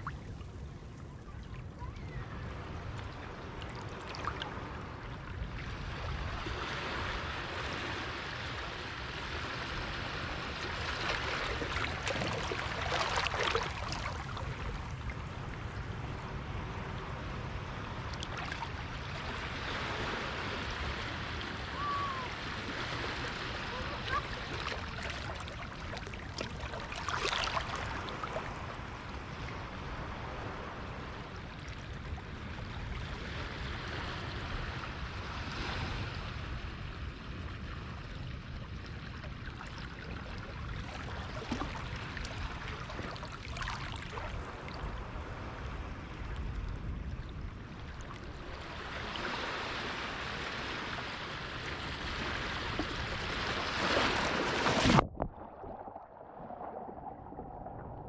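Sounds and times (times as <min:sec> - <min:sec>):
water splashing against shore: 0:09.4 - 0:15.8, 0:21.7 - 0:29.8, 0:39.9 - 0:45.5, 0:47.9 - 0:58.0.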